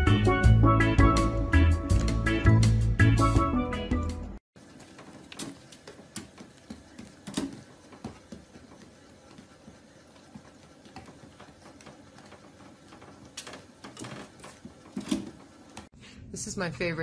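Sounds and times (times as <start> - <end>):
treadmill mechanical hum: 4.6 - 15.9.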